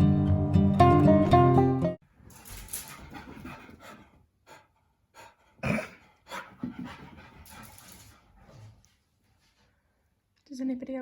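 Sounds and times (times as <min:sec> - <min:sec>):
dog panting: 0:02.4 - 0:09.1.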